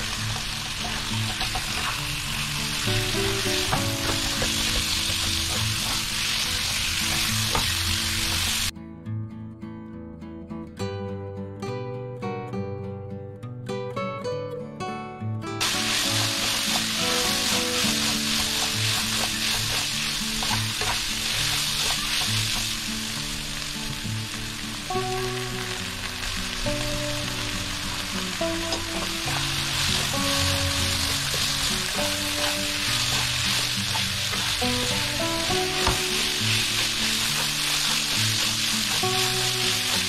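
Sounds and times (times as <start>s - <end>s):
meat sizzling in hot oil: 0.0s - 8.7s, 15.6s - 40.0s
spatula scraping wok: 0.0s - 8.7s, 15.6s - 22.8s, 29.0s - 40.0s.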